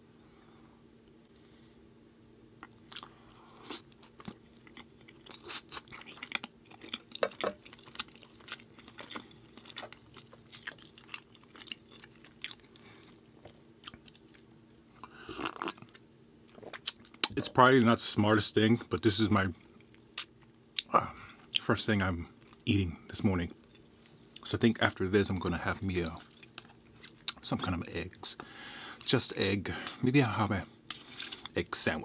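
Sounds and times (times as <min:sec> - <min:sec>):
chewing crunchy cookie: 0:02.6 - 0:17.6, 0:23.4 - 0:28.2, 0:30.9 - 0:31.6.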